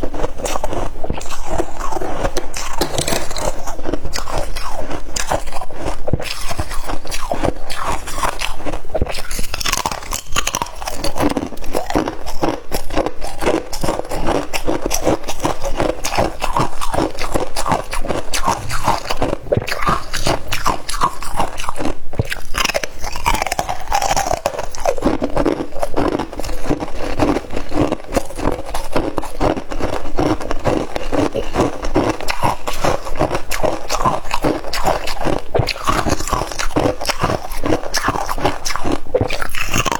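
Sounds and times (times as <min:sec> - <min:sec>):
chewing ice crunches: 0:00.0 - 0:39.9.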